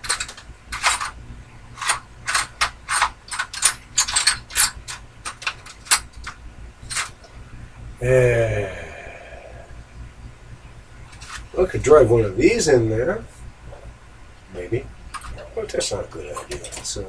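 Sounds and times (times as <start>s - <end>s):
metal hardware clinking: 0.0s - 1.2s, 1.8s - 7.3s.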